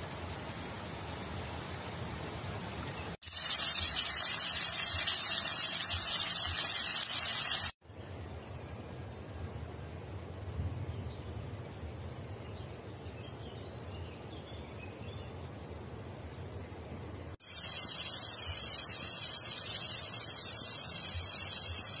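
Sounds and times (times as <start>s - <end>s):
tomatoes sizzling in oil: 2.7s - 7.8s, 17.4s - 22.0s.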